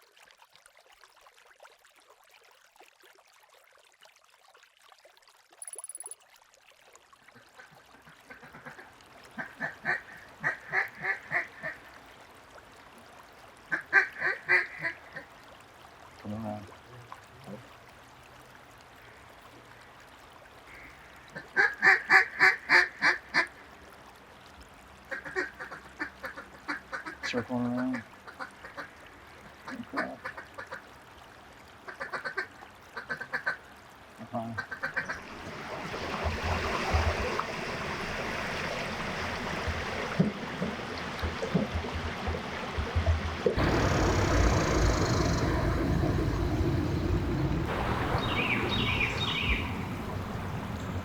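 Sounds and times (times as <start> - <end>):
river water rushing: 35.2 - 51.0.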